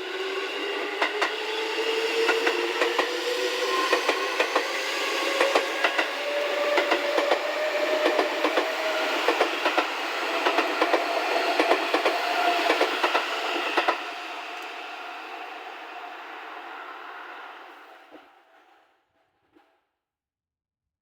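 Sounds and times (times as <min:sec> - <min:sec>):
train motor whine: 0:00.0 - 0:18.3
train wheels clacking over joints: 0:02.1 - 0:14.7.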